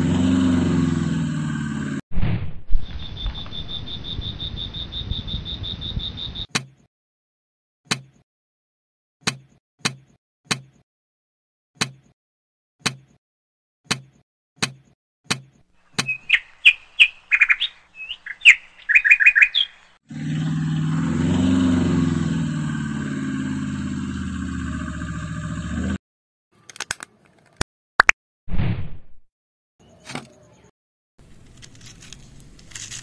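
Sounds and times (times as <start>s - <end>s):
birds chirping: 2.7s - 6.5s, 15.8s - 21.5s.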